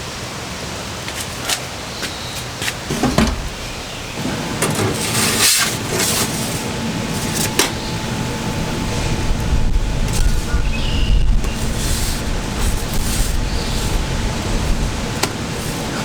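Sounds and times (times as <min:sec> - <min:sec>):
wind buffeting microphone: 0:06.6 - 0:16.0.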